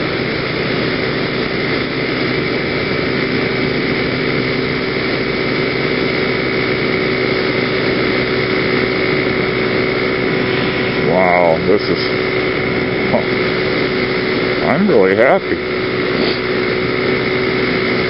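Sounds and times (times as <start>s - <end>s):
scooter engine running: 0.0s - 18.0s.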